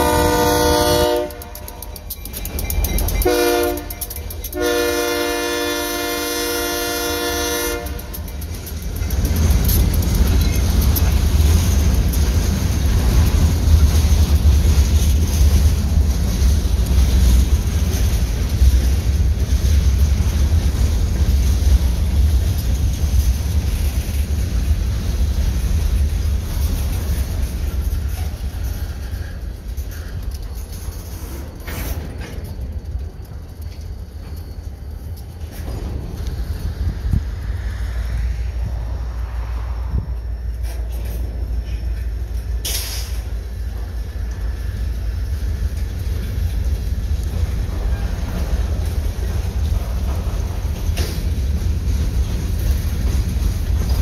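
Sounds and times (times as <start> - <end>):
locomotive air horn: 0.0 - 2.0, 3.2 - 8.3
train wheels rumbling on rail: 0.0 - 54.0
wheels clicking over joints: 1.2 - 4.6, 7.8 - 36.6.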